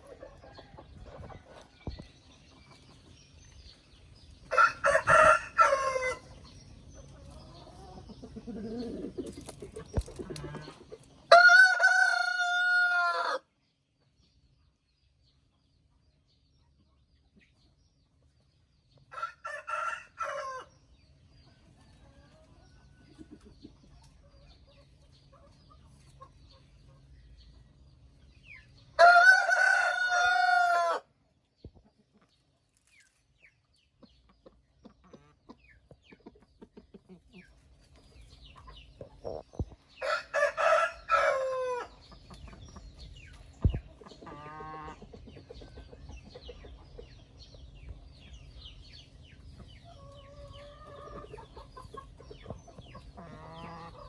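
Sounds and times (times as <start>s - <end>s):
rooster crowing: 4.5s - 6.2s, 11.3s - 13.4s, 29.0s - 31.1s, 40.0s - 41.9s.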